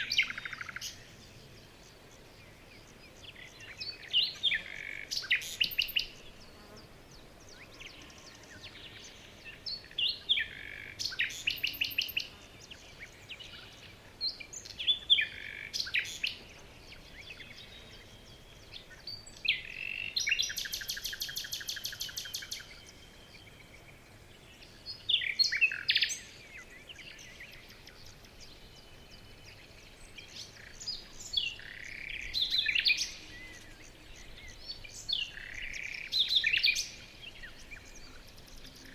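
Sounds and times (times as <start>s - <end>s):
bird trill: 0.0s - 1.1s
songbirds chirping and singing: 0.0s - 38.9s.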